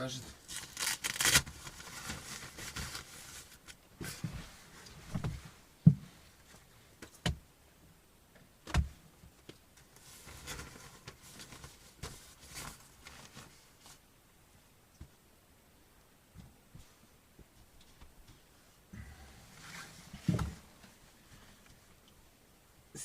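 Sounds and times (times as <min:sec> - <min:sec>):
rustling: 0:00.2 - 0:07.2, 0:09.3 - 0:14.2, 0:16.7 - 0:22.3.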